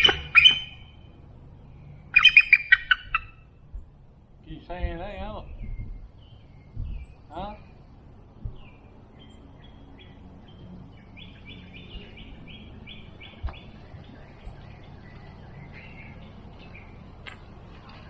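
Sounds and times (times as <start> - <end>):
bird calling high repeated notes: 0.0 - 1.2, 1.8 - 3.8
low outdoor rumble: 0.0 - 18.0.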